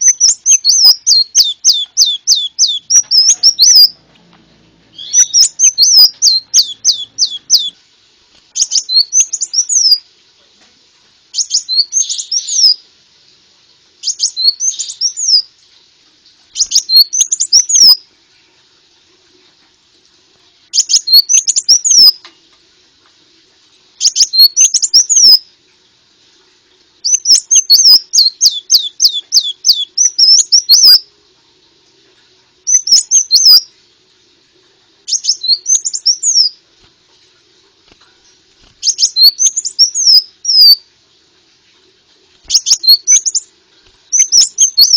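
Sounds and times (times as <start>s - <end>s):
bird singing rapid high chirps: 0.0s - 4.0s, 4.9s - 7.8s, 8.6s - 10.0s, 11.4s - 12.8s, 14.0s - 15.5s, 16.6s - 18.0s, 20.8s - 22.2s, 24.0s - 25.4s, 27.0s - 31.0s, 32.7s - 33.6s, 35.1s - 36.6s, 38.8s - 40.8s, 42.4s - 43.5s, 44.1s - 44.9s.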